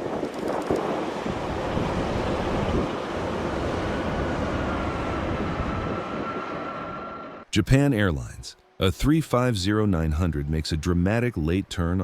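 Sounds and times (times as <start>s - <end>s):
wind rushing across microphone: 0.0s - 7.0s.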